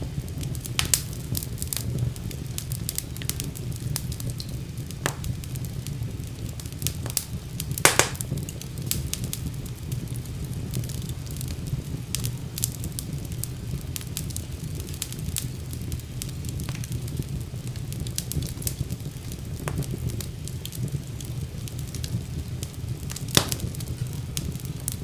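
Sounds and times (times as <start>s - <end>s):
fire crackling and popping: 0.0s - 25.0s
low rumble of flames: 0.0s - 25.0s.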